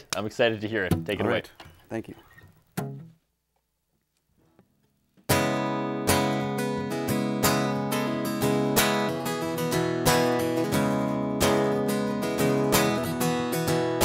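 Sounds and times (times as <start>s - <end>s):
acoustic guitar strumming: 0.8s - 3.2s, 5.3s - 14.0s.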